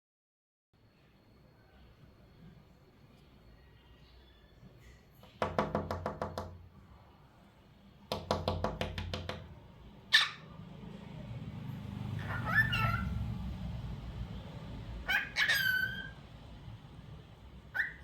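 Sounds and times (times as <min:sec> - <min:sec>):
bird rapid tapping: 0:05.2 - 0:06.6, 0:08.1 - 0:09.6.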